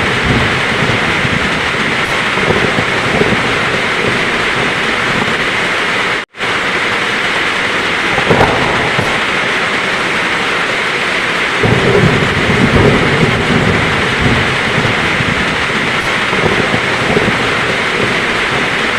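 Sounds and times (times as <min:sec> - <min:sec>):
heavy rain pouring: 0:00.0 - 0:18.9
thunder rumble: 0:00.0 - 0:18.9.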